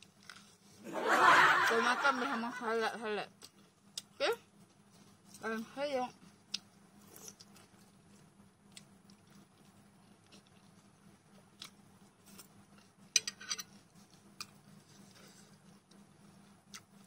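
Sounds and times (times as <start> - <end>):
soft chewing: 0.0 - 0.8, 3.3 - 17.0.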